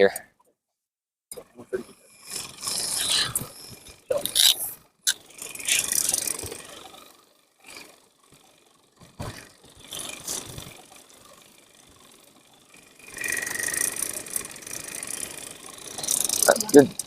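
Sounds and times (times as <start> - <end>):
fishing reel drag running: 1.9 - 17.0.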